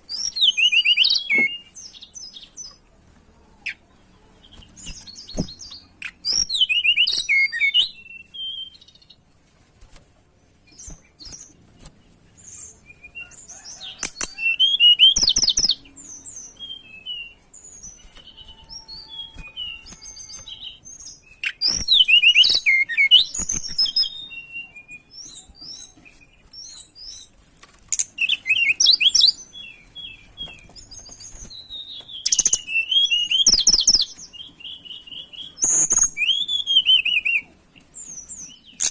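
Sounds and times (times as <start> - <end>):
soft bird chirps: 10.3 - 38.9.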